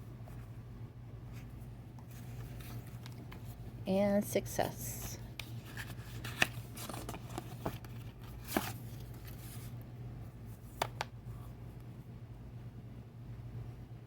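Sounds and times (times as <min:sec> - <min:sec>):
steady low hum: 0:00.0 - 0:14.0
paper rustling: 0:01.3 - 0:03.6, 0:04.6 - 0:09.8.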